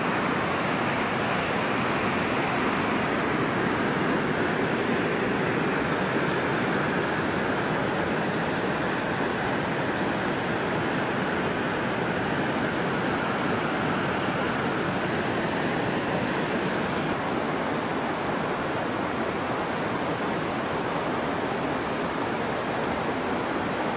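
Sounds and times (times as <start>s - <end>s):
waterfall rushing: 0.0s - 18.6s.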